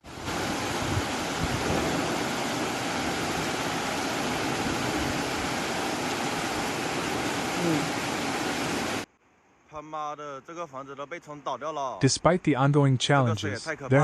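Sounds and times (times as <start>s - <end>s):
floodwater rushing: 0.0s - 9.1s.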